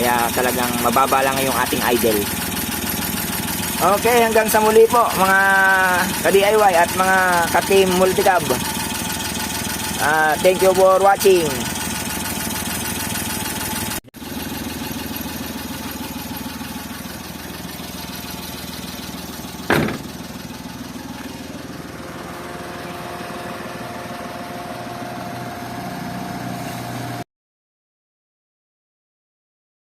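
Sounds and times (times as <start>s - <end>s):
engine idling: 0.0s - 27.2s.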